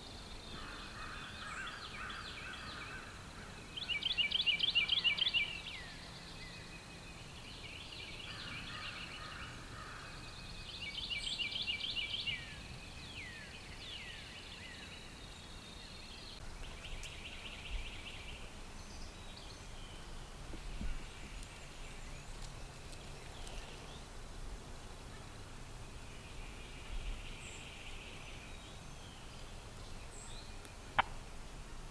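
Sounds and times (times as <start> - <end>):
quiet bird calls: 0.0 - 24.1.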